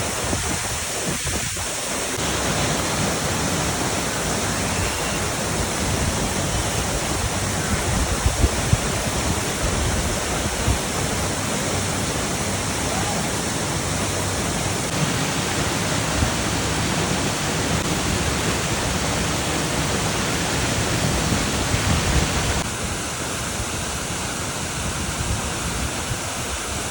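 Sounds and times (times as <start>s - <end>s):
waterfall rushing: 0.0s - 24.7s.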